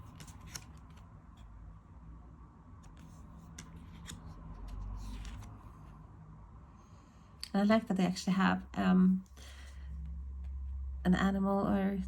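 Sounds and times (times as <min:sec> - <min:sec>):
card sliding on card: 0:00.0 - 0:01.0, 0:02.9 - 0:05.5
cards clicking: 0:00.0 - 0:01.0, 0:02.8 - 0:05.6
low steady hum: 0:00.0 - 0:12.0.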